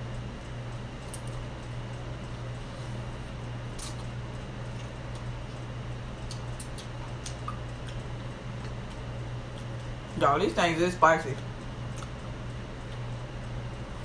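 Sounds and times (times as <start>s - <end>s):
wet mouth clicks of chewing: 6.2s - 9.8s, 11.9s - 12.2s.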